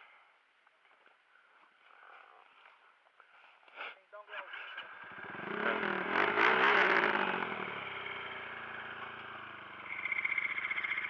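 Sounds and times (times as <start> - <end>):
dirt bike engine revving and idling: 4.6 - 11.0.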